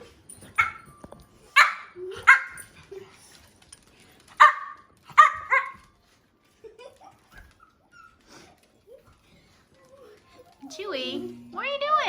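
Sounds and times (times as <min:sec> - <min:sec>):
dog barking: 0:00.6 - 0:00.8, 0:01.6 - 0:02.6, 0:04.4 - 0:05.8.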